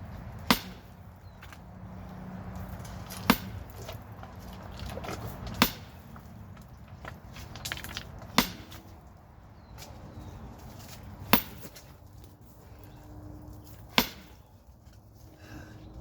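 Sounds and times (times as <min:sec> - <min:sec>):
sledgehammer striking rock: 0:00.4 - 0:01.5, 0:03.0 - 0:04.0, 0:04.8 - 0:06.3, 0:07.4 - 0:09.0, 0:11.2 - 0:11.9, 0:13.8 - 0:14.5.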